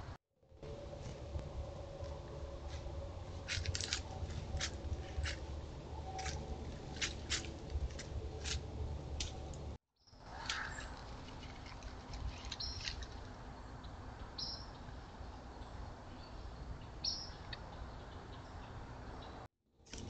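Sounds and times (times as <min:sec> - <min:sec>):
high bird chirps: 0:12.6 - 0:13.0, 0:14.4 - 0:14.8, 0:16.2 - 0:19.4.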